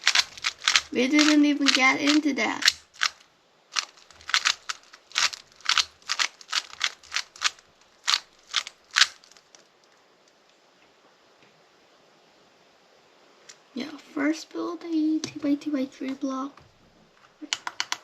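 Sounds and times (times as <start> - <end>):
puzzle cube turning clicks: 0.0 - 3.2, 3.8 - 9.6, 17.4 - 18.0.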